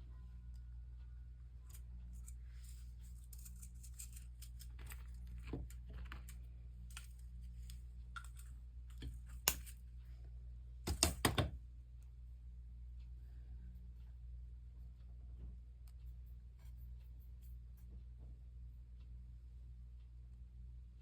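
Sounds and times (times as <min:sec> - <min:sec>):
steady low hum: 0:00.0 - 0:21.0
soldering iron clicks and crackles: 0:01.7 - 0:09.8.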